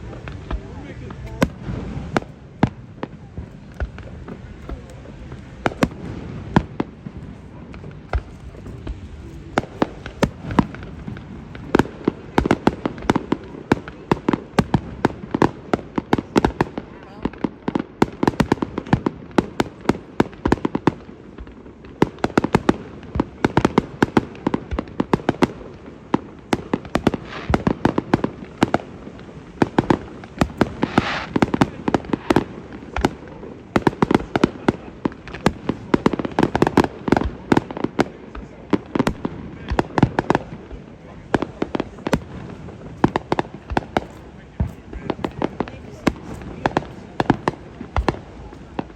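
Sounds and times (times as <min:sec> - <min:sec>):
fireworks bangs and pops: 0:00.0 - 0:48.9
firework hiss: 0:25.4 - 0:48.9.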